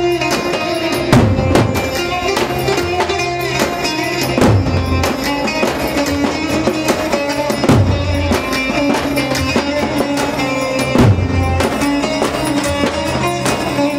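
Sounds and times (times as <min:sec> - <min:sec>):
band playing dance music: 0:00.0 - 0:13.9.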